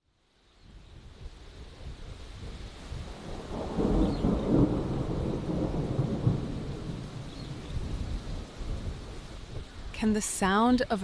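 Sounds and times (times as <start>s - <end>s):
steady rain hiss: 0.0s - 11.0s
deep thunder rumble: 0.9s - 9.7s.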